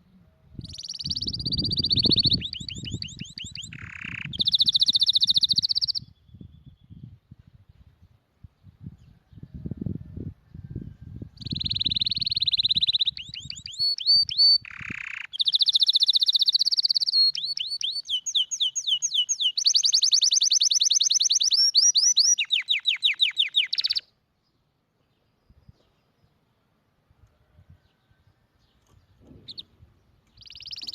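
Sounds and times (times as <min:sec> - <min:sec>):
canary singing trills: 0:00.5 - 0:07.1, 0:11.3 - 0:24.2, 0:28.7 - 0:30.9.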